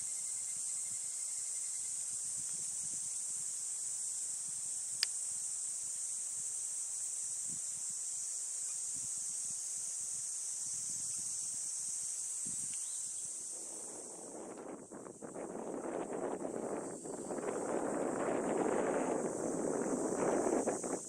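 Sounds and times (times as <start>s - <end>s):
insects chirping chorus: 0.0s - 21.0s.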